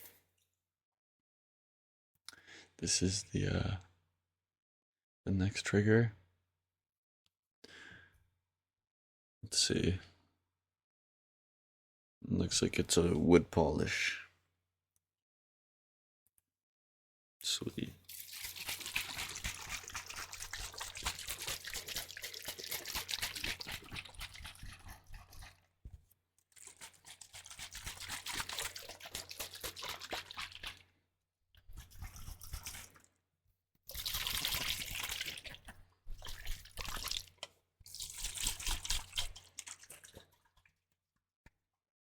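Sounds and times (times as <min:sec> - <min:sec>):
liquid sloshing in a bottle: 0:17.8 - 0:31.0, 0:31.7 - 0:33.2, 0:33.9 - 0:40.8.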